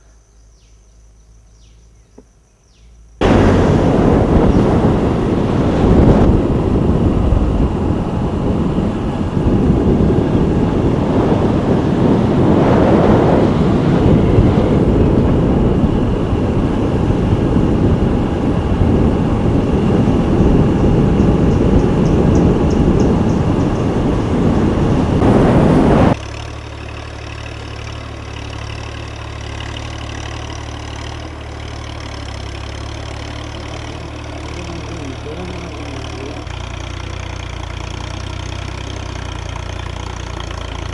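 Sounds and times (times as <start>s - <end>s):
loud rough rumbling noise: 3.2s - 26.2s, 28.4s - 40.9s
tractor engine running: 3.2s - 40.9s.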